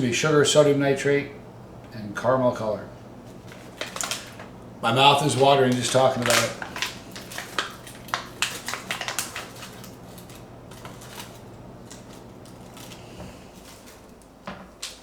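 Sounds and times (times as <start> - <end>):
plastic bag crinkling: 3.2 - 15.0.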